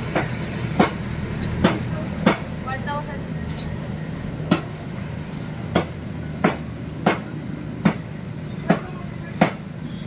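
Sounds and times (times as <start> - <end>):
sharp knocking strikes: 4.5 - 4.7, 5.7 - 9.6.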